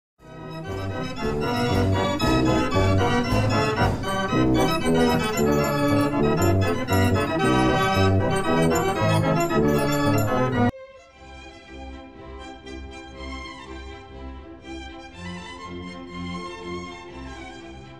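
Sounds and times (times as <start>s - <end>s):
organ music with pulsing bass: 0.2s - 10.7s.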